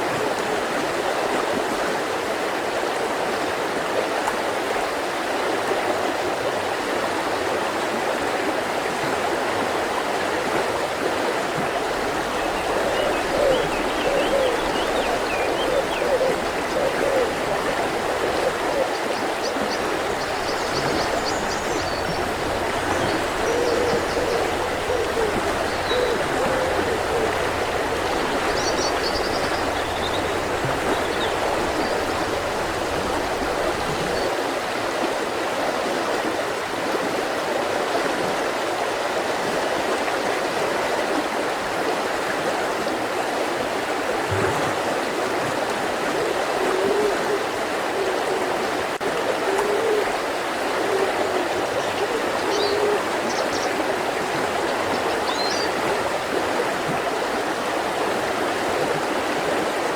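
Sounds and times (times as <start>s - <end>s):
river rushing over rocks: 9.1s - 35.1s
faint bird chirps: 19.4s - 34.3s.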